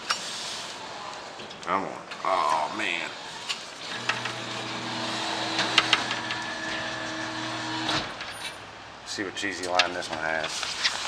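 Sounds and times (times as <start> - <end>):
claw machine motors whirring: 2.5 - 8.4.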